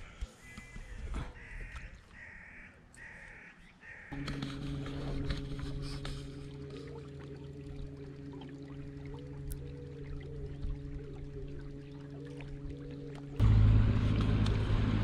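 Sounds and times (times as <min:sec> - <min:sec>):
bird calling: 0:00.0 - 0:04.3
steady low hum: 0:03.9 - 0:15.0.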